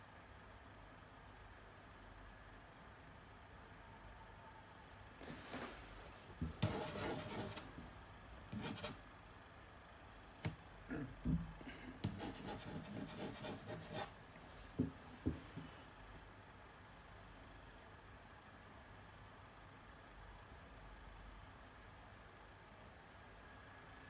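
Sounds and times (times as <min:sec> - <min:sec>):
parts rubbing and scraping: 0:06.6 - 0:07.7.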